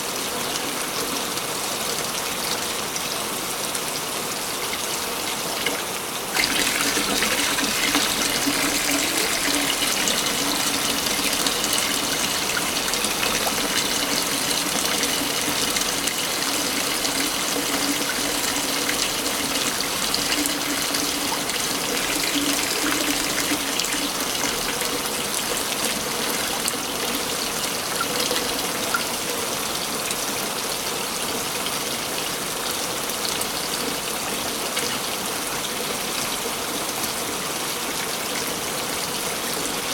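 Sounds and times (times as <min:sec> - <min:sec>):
waterfall rushing: 0:05.3 - 0:20.2.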